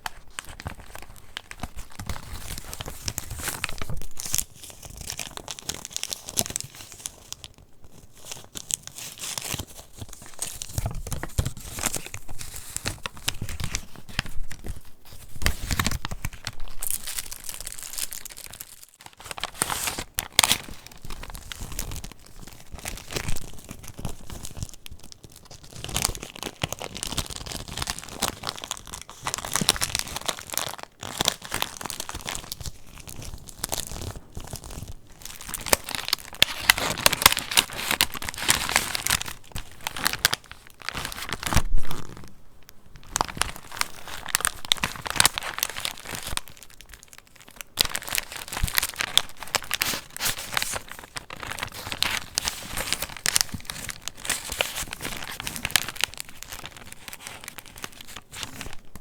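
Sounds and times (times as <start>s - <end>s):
paper pages rustling: 0.0s - 24.6s, 25.7s - 42.3s, 43.1s - 46.7s, 47.5s - 59.0s.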